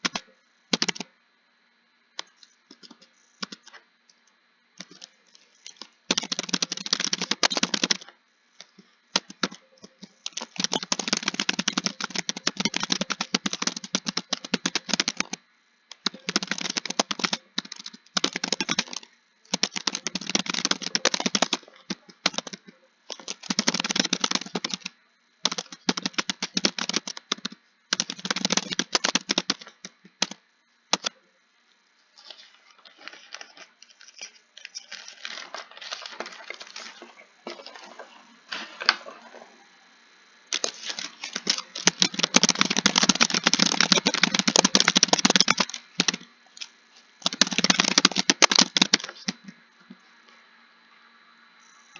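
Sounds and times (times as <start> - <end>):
typing on a computer keyboard: 0.0 - 1.1, 2.2 - 3.8, 4.8 - 8.1, 9.1 - 31.2, 40.6 - 49.5.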